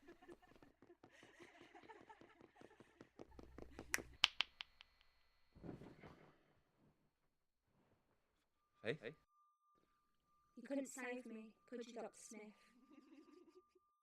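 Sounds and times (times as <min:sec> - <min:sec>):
loud sharp snaps: 0:03.4 - 0:05.0.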